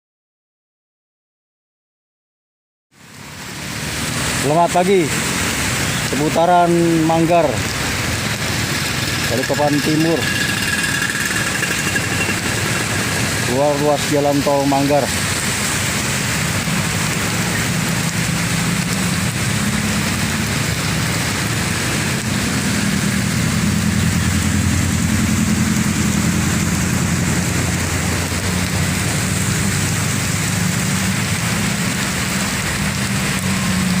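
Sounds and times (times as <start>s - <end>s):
heavy rain pouring: 2.9s - 34.0s
vehicle engine humming: 6.8s - 34.0s.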